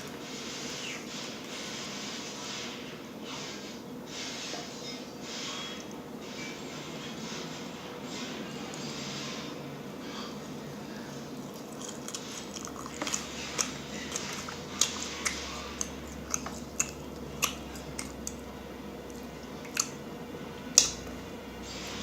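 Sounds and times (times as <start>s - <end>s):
person chewing: 11.3s - 21.2s
mouth clicks and smacks: 11.5s - 18.4s, 19.1s - 20.0s, 20.7s - 21.1s.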